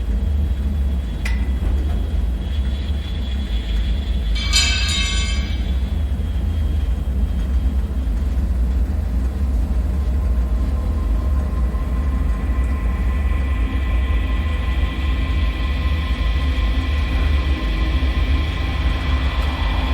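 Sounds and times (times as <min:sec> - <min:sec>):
deep ambient drone rumble: 0:00.0 - 0:19.9
faint high whine: 0:00.7 - 0:06.6
high ringing screech: 0:04.4 - 0:06.0.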